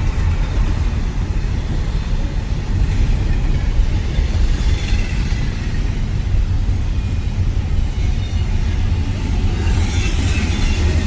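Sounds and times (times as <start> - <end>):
train passing with low rumble: 0.0 - 11.0.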